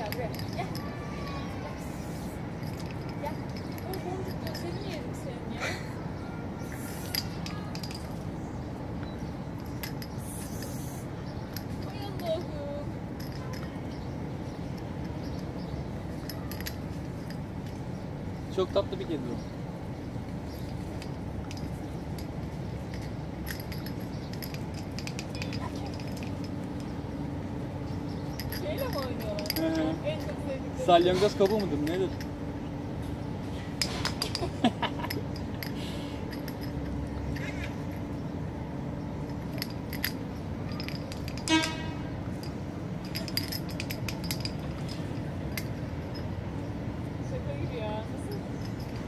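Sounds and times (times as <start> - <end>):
outdoor background rumble: 0.0 - 49.0.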